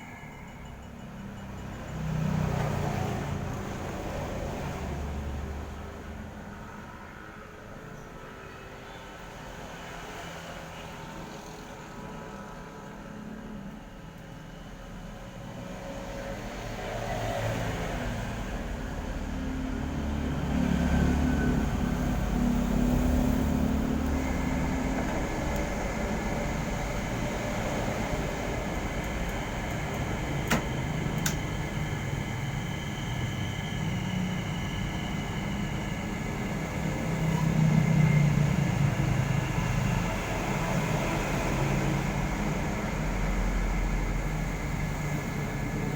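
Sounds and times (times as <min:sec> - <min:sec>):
washing machine motor humming: 0:19.0 - 0:45.9.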